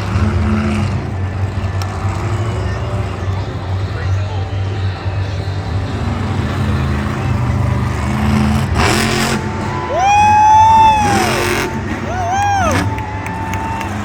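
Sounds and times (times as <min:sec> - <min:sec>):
truck engine revving: 0:00.0 - 0:14.0
high-pitched yell: 0:09.5 - 0:14.0.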